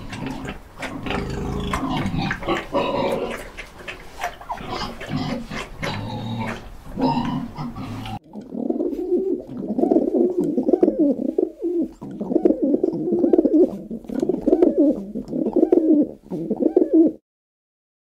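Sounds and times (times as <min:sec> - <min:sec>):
pigeons cooing: 0:00.0 - 0:17.2.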